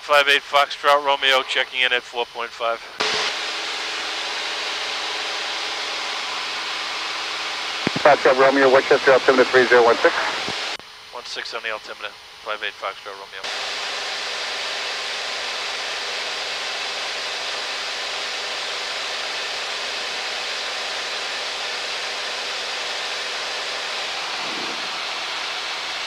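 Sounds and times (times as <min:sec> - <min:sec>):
airplane engine and propeller: 0:03.0 - 0:10.8, 0:13.4 - 0:26.0.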